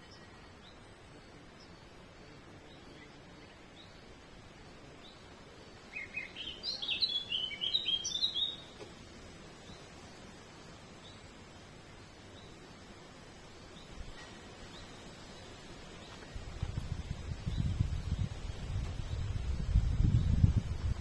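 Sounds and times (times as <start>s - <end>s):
outdoor background hiss: 0.0s - 21.0s
songbird chirping: 0.0s - 21.0s
distant bird chirps: 5.0s - 9.0s.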